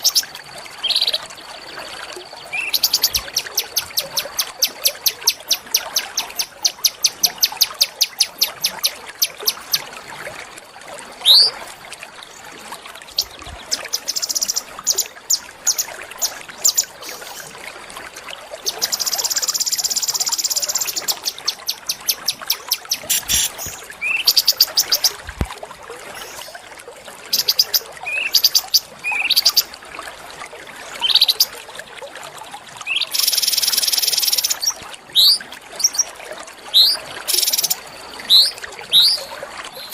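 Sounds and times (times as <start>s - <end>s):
songbirds chirping and whistling: 2.4s - 9.6s, 11.3s - 11.5s, 13.2s - 17.4s, 36.8s - 39.9s
buzzy bird trills: 18.7s - 25.0s.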